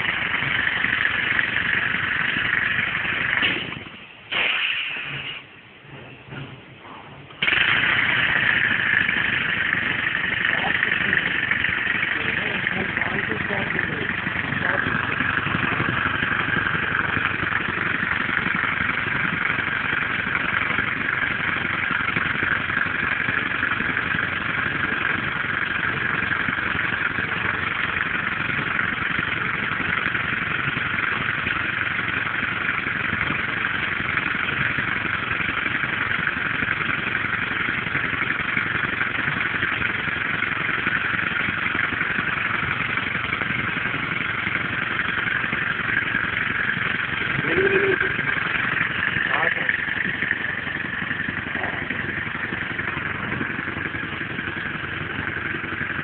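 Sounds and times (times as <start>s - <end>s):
compressed-air engine running: 0.0s - 56.0s.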